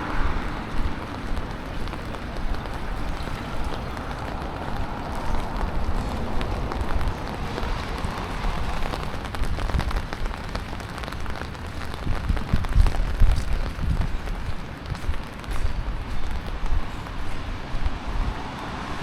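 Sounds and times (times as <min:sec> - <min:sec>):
low rumble: 0:00.0 - 0:10.1
rain falling on street: 0:00.0 - 0:19.0.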